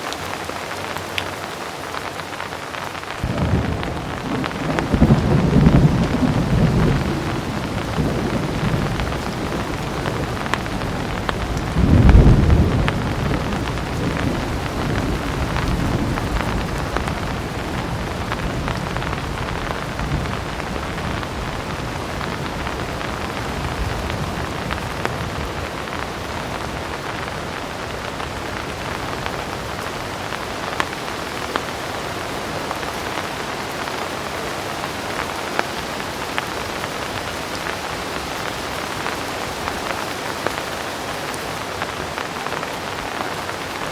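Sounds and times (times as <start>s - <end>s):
heavy rain falling: 0.0s - 43.9s
low thunder rumble: 3.2s - 30.4s.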